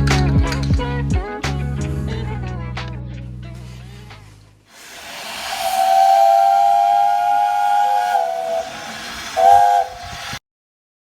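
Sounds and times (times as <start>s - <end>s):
steam hissing: 4.7s - 10.4s
steam whistle blowing: 4.7s - 10.4s.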